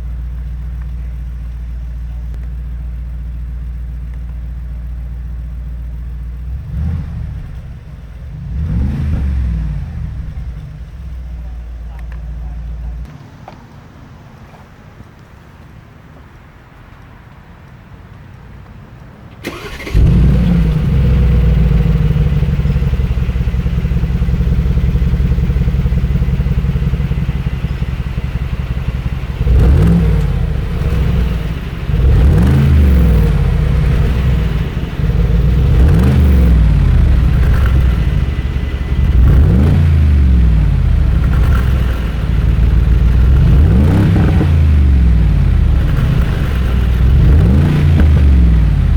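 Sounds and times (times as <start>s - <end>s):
car engine starting and idling: 0.0s - 13.4s, 19.2s - 48.9s
car engine revving: 6.3s - 13.1s, 19.4s - 48.9s.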